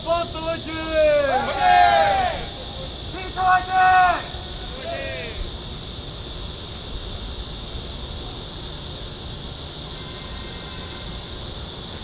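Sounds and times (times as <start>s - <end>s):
cicada chorus drone: 0.0s - 12.0s.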